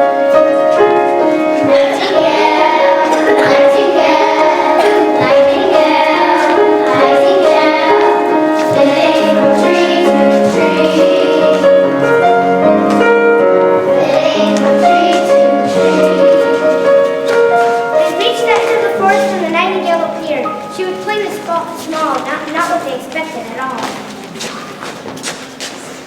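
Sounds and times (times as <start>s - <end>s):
instrumental accompaniment: 0.0s - 26.0s
child singing: 1.6s - 11.9s, 13.8s - 17.0s, 18.0s - 23.9s.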